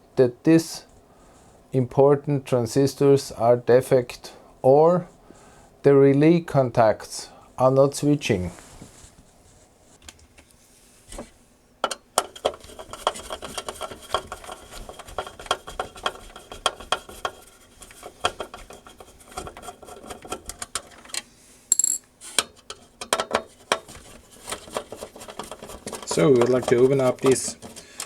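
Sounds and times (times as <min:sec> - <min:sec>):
small metal tools clinking: 0:21.7 - 0:22.1.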